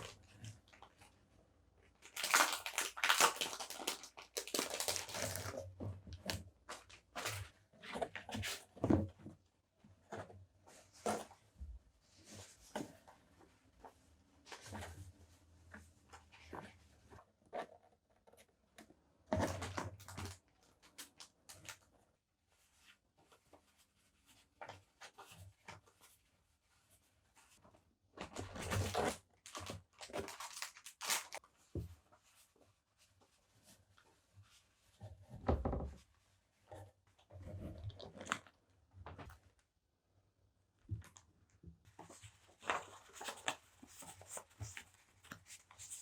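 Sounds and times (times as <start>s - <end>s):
packaging rustling and tearing: 2.0s - 5.6s, 28.6s - 31.4s.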